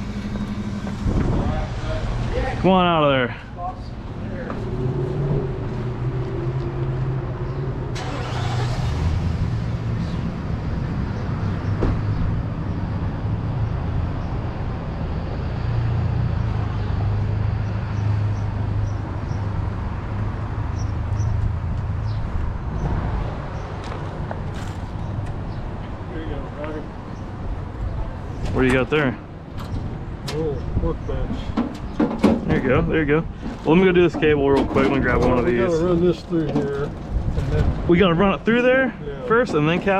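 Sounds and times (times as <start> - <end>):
vehicle engine droning: 0.0 - 31.9.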